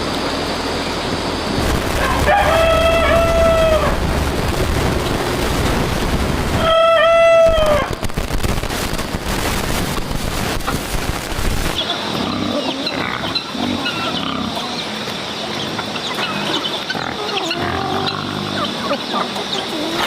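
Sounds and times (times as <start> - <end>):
rooster crowing: 1.9 - 4.1, 6.6 - 8.0.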